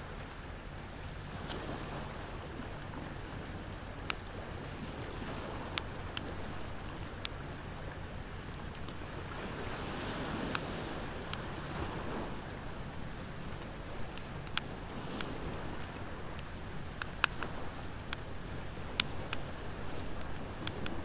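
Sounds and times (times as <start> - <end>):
ocean waves: 0.1 - 21.0
wood fire crackling: 12.5 - 21.0.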